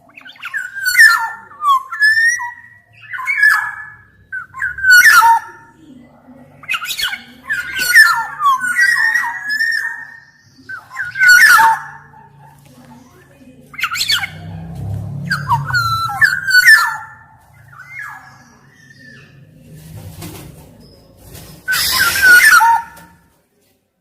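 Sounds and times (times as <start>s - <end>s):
bird singing whistled notes: 15.2s - 19.4s.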